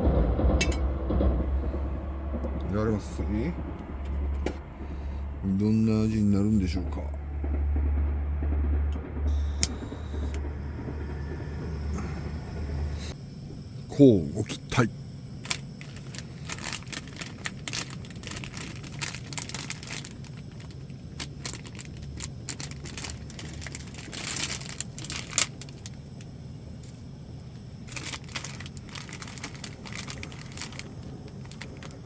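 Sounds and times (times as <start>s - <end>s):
steady low hum: 0.0s - 32.0s
plastic packaging crinkling: 15.4s - 27.0s, 27.8s - 32.0s
plastic packaging ripping: 15.5s - 25.9s, 27.9s - 32.0s.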